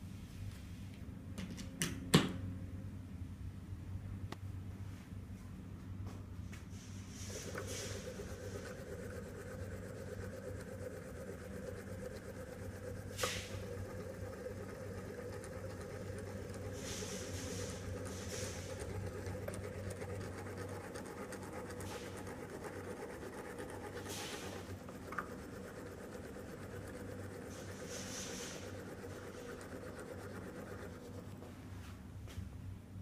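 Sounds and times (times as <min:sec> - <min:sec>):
stove air unit humming: 0:00.0 - 0:33.0
air hissing: 0:06.7 - 0:09.4, 0:13.0 - 0:19.4, 0:24.0 - 0:24.7, 0:27.5 - 0:29.5.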